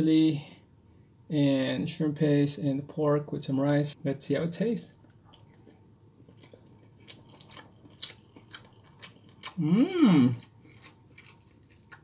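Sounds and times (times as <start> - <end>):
person chewing: 4.9 - 12.0
person humming mmm: 9.4 - 10.5.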